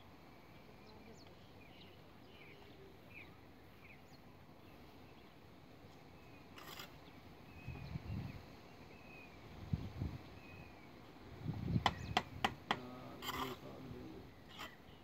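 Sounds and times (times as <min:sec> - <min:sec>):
faint bird chirps: 0:00.2 - 0:11.0, 0:13.0 - 0:15.0
noisy scrape: 0:13.1 - 0:13.8.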